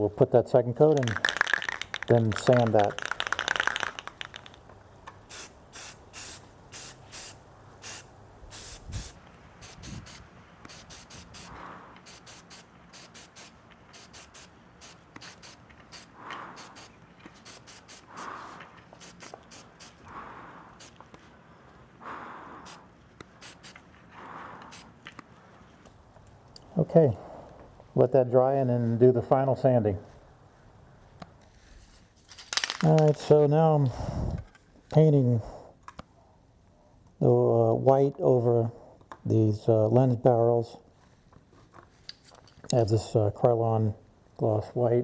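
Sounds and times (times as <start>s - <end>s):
aerosol can spraying: 0.9s - 4.6s, 5.3s - 18.3s, 19.0s - 20.0s.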